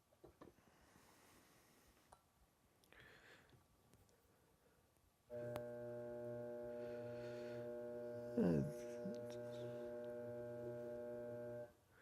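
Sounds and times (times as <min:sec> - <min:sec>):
pottery wheel motor humming: 0:05.3 - 0:11.7.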